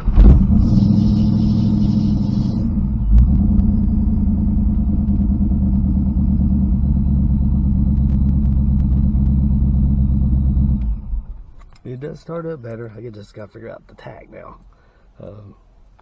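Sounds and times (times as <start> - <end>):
car engine idling: 0.0 - 12.1.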